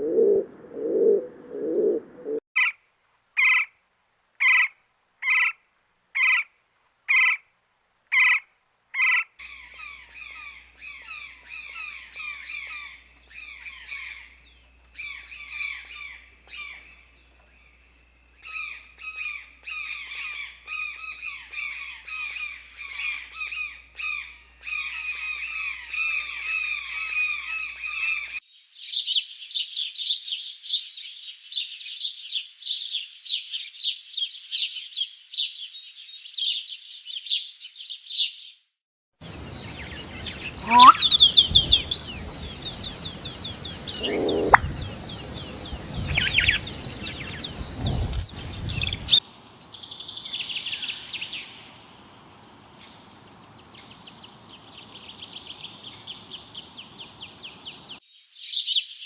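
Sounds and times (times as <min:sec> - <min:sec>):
flock of birds chattering: 0:39.3 - 0:58.0
high thin bird chirping: 0:40.2 - 0:42.2, 0:43.2 - 0:45.6
bird squawks: 0:40.4 - 0:41.3, 0:43.9 - 0:44.7.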